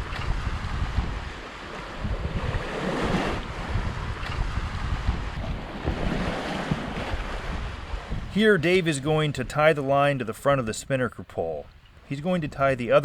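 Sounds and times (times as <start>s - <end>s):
wind buffeting microphone: 0.0s - 9.8s
water rushing along hull: 0.0s - 13.0s.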